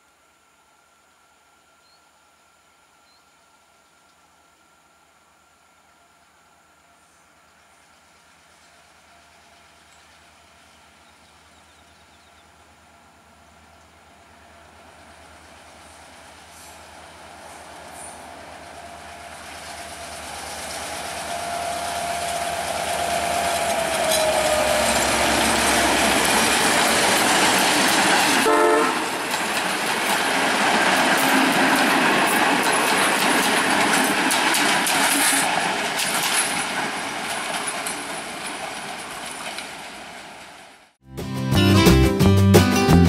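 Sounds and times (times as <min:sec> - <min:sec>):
train wheels clattering over rail joints: 0:19.4 - 0:28.5, 0:29.1 - 0:40.6
locomotive horn: 0:20.0 - 0:27.7, 0:28.4 - 0:29.3
guitar music: 0:41.1 - 0:43.0.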